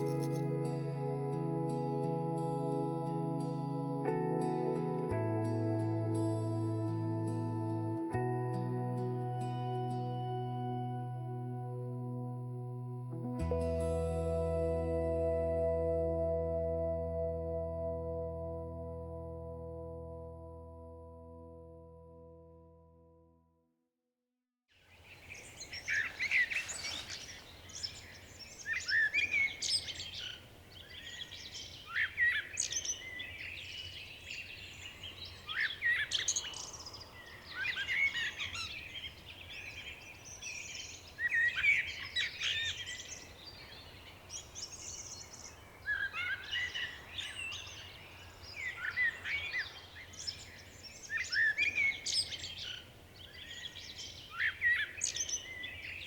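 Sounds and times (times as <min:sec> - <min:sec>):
songbirds singing: 0:24.9 - 0:56.0.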